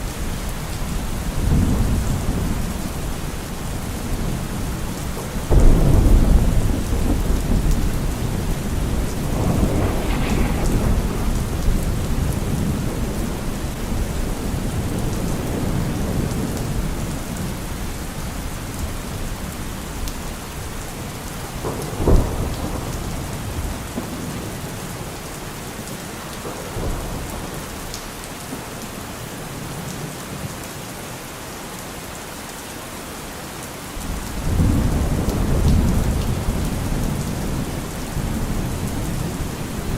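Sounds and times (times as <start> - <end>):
heavy rain: 0.0 - 39.9
rolling thunder: 0.2 - 28.7, 34.0 - 39.9
sharp thunderclap: 5.1 - 17.0, 21.4 - 24.4, 34.0 - 39.9.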